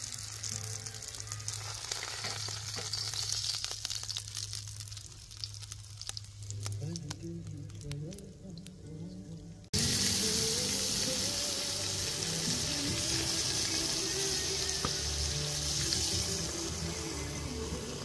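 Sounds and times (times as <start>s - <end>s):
background music: 0.0s - 3.0s, 6.6s - 18.0s
steady loud hiss: 9.8s - 18.0s.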